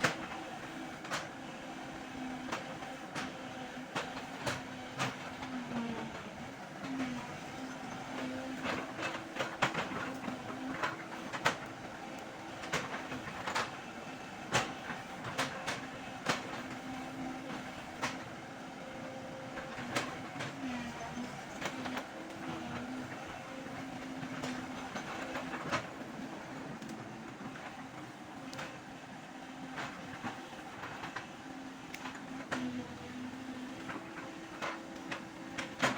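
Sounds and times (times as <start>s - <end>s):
excavator diesel engine running: 0.6s - 15.1s, 15.8s - 28.5s.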